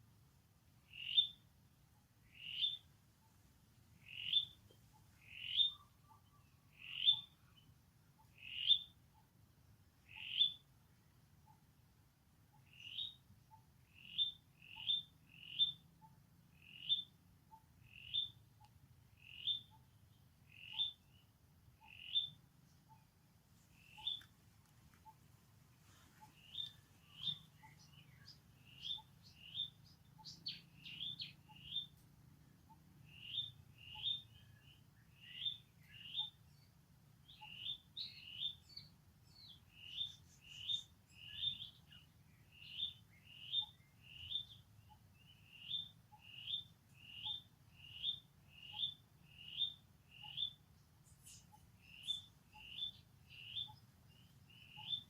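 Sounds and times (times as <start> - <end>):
small animal chirping: 0.9 - 1.4, 4.0 - 4.6, 5.2 - 7.4, 12.6 - 18.4, 20.5 - 21.0, 21.8 - 23.1, 23.8 - 24.4, 25.9 - 32.0, 32.7 - 34.4, 42.6 - 55.0.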